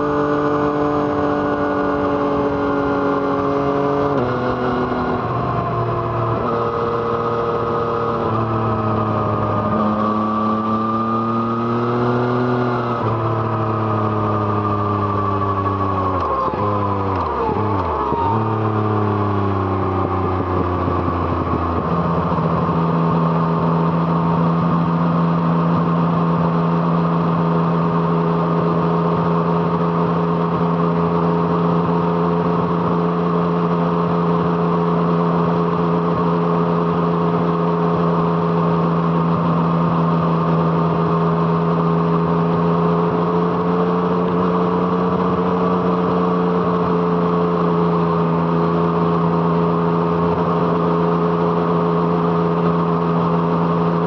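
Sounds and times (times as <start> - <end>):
motorcycle engine while riding: 0.0 - 54.0.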